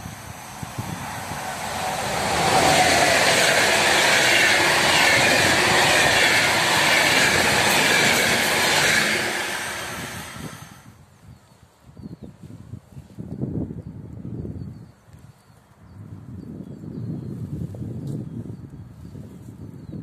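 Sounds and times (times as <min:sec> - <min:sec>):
passenger train passing: 0:00.0 - 0:10.9.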